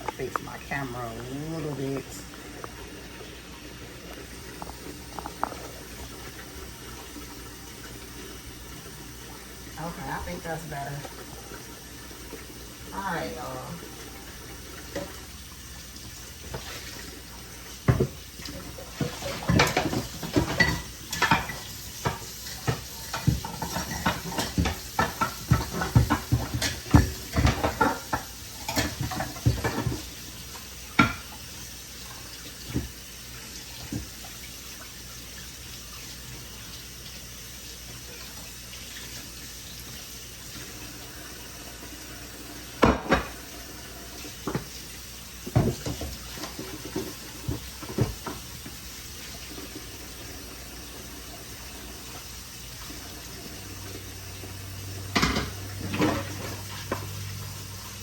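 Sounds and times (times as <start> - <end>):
tap water running: 0.0 - 58.0
dishes and cutlery clattering: 19.0 - 30.1.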